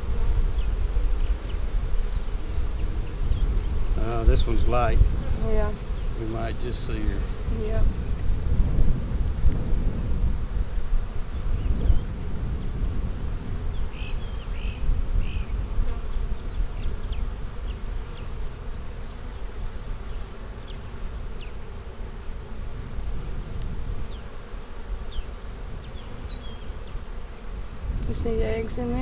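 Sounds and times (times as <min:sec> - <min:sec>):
bees buzzing: 0:00.0 - 0:29.0.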